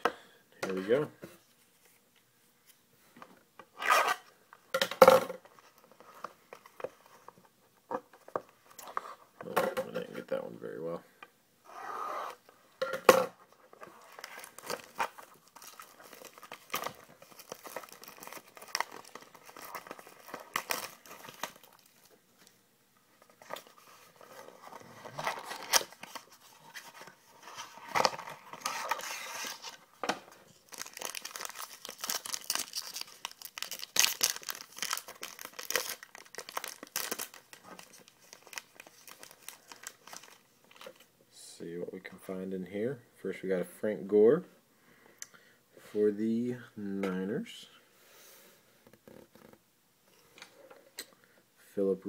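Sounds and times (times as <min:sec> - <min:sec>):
cards rustling: 0:13.7 - 0:22.2, 0:30.5 - 0:41.1
plastic wrapping tearing: 0:14.0 - 0:22.1, 0:30.6 - 0:40.8.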